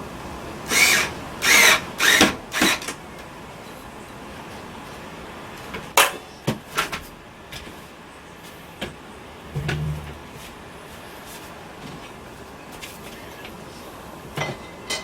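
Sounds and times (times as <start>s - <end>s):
brief low hum: 9.5s - 10.6s.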